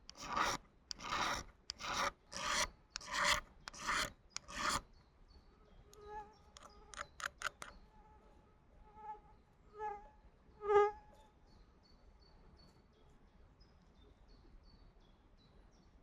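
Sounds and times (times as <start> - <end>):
sharp clicks: 6.6 - 7.8.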